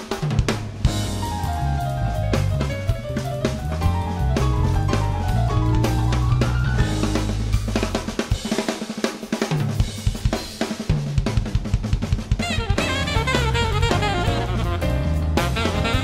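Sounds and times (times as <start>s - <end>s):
drum kit: 0.0s - 16.0s
jazz combo playing: 0.7s - 8.7s, 12.3s - 16.0s
saxophone with vibrato: 12.4s - 16.0s.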